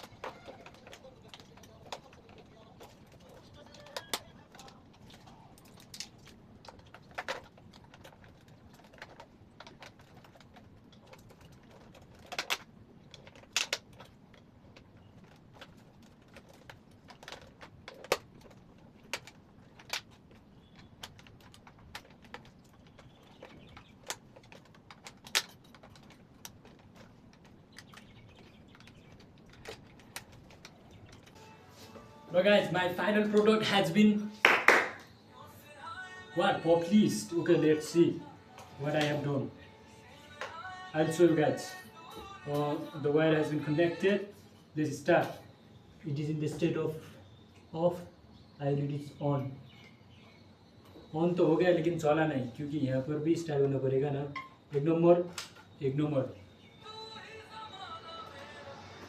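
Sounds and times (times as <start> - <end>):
small hard objects clicking: 0.0 - 31.6.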